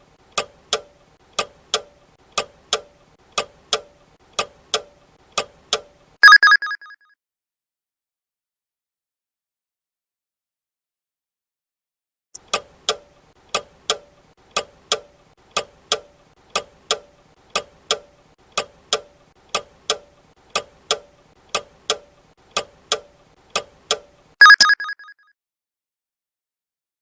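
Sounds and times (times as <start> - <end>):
clock ticking: 0.3 - 6.4, 12.4 - 24.9
bell ringing: 24.4 - 25.1.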